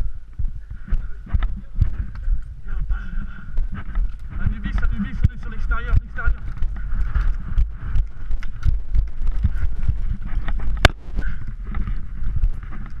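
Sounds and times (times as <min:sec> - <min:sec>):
thumping footsteps: 0:00.0 - 0:13.0
gear rustling: 0:01.4 - 0:13.0
sharp crack: 0:10.8 - 0:11.4.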